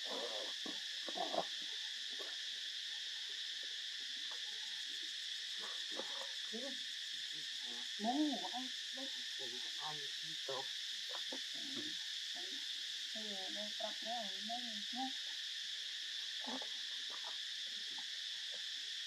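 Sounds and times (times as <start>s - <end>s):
arching insect call: 0.0s - 19.0s
faint scattered insect calls: 0.0s - 19.0s
insect drone: 0.0s - 19.0s.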